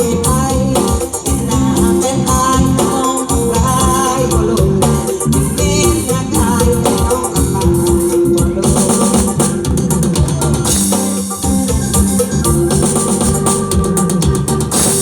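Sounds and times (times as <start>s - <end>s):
drums: 0.0s - 15.0s
live band instrumental music: 0.0s - 15.0s
shaker percussion: 5.1s - 15.0s.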